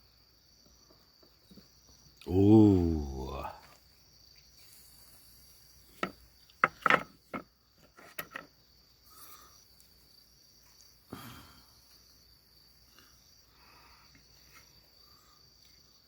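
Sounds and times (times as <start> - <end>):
crickets chirping: 0.0 - 16.0
sharp clicks and knocks: 6.0 - 8.5.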